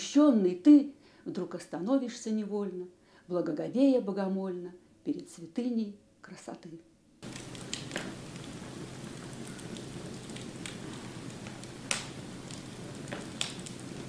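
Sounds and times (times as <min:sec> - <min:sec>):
fire crackling: 0:07.2 - 0:14.0.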